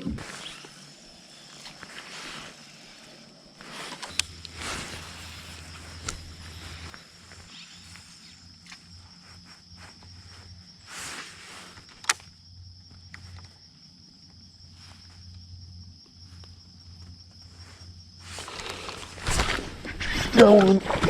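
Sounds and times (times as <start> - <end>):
low hum: 0.0 - 8.0
crickets trilling: 0.0 - 21.0.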